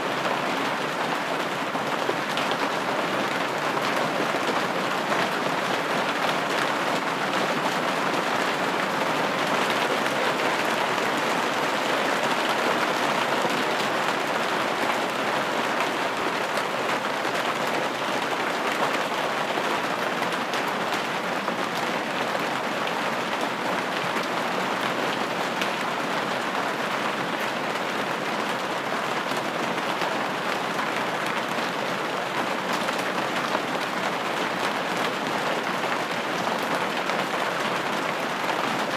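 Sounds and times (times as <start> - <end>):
rain on a window pane: 0.0 - 38.9.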